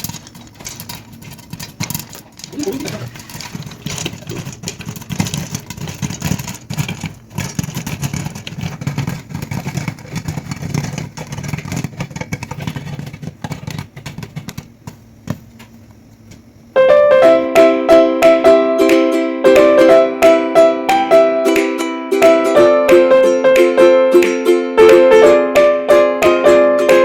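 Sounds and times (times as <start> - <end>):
popcorn popping: 0.0 - 27.0
plucked ukulele music: 16.8 - 27.0.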